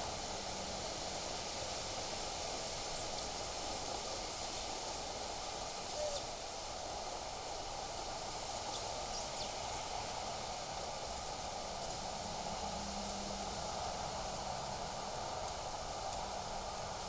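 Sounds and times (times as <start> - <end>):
faint high chirps: 2.9 - 3.3, 5.9 - 6.3, 8.7 - 9.9.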